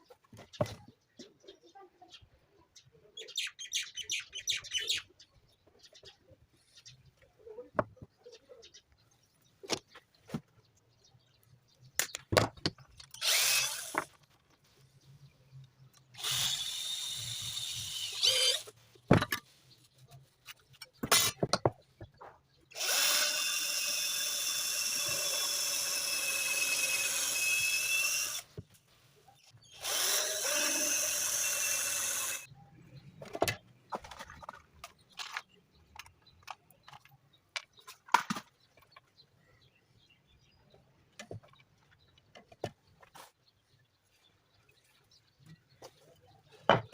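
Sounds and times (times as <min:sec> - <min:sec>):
handling knocks and clicks: 0:20.5 - 0:22.5.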